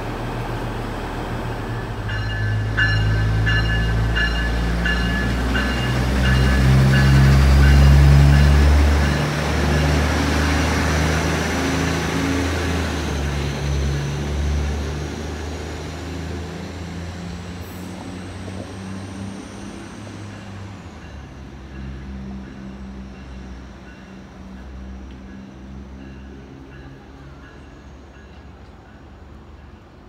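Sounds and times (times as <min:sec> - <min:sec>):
diesel train engine drone: 0:00.0 - 0:30.0.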